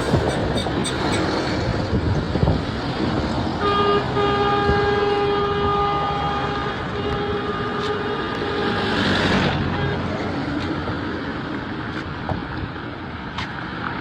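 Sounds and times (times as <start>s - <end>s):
passing traffic: 0.0s - 14.0s
vehicle horn: 3.6s - 10.3s.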